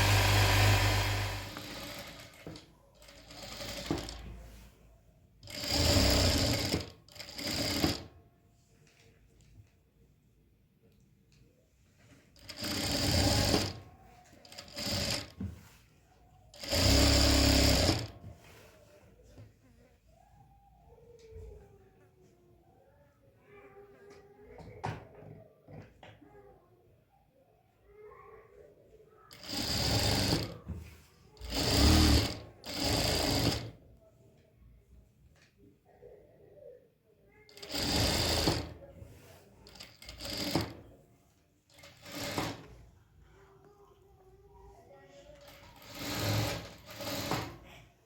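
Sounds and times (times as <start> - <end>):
sewing machine stitching: 0.0 - 4.6, 5.4 - 8.1, 12.4 - 15.5, 16.5 - 18.2, 29.3 - 30.7, 31.4 - 33.8, 37.5 - 38.8, 39.6 - 41.0, 41.7 - 42.8, 45.4 - 47.7.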